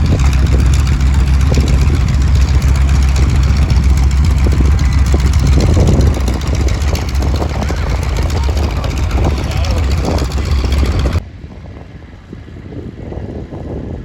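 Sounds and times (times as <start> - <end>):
piston aircraft engines droning: 0.0 - 14.0.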